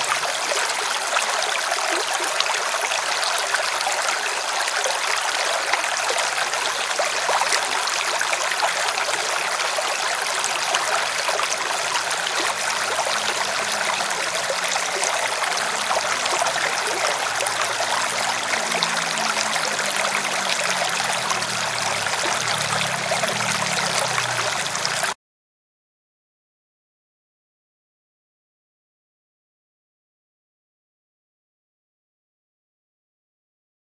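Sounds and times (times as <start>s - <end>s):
river water splashing and rushing: 0.0s - 25.2s.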